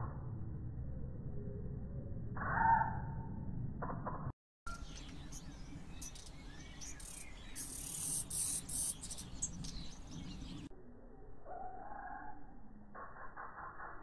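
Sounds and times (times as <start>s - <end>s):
outdoor background noise: 0.0s - 14.0s
birds chirping high and thin: 4.7s - 10.7s.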